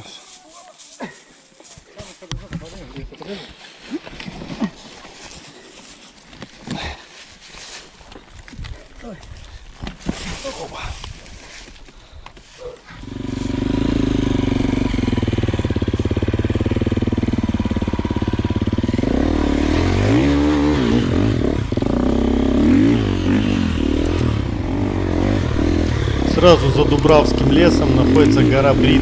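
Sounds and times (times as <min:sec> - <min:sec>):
dirt bike engine revving: 0:13.1 - 0:29.0.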